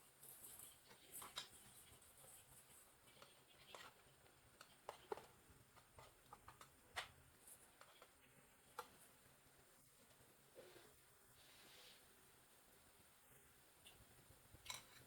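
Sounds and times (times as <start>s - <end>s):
faint clicks and taps: 0.2s - 9.4s.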